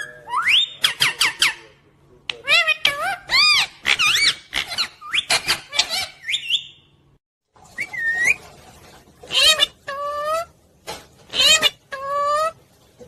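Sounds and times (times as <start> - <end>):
parrot whistling chirps: 0.0 - 1.6, 2.8 - 6.9, 7.8 - 8.4.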